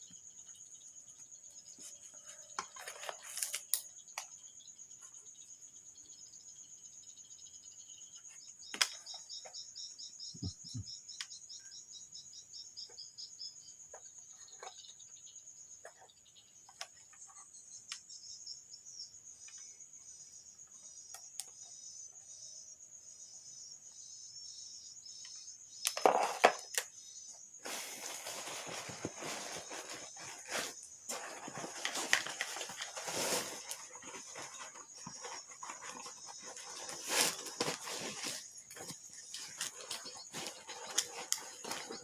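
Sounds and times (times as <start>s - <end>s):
crickets chirping: 0.0s - 42.0s
rustling and clattering: 26.0s - 26.7s, 27.6s - 42.0s.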